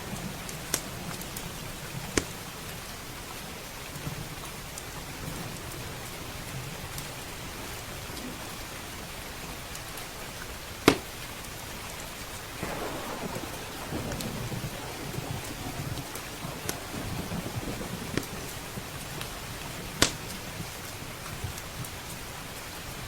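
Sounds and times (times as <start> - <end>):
faint wood fire crackles: 0.0 - 23.0
heavy rain: 0.0 - 23.0
rolling thunder: 12.5 - 21.6
loud sharp thunder crack: 12.6 - 20.7.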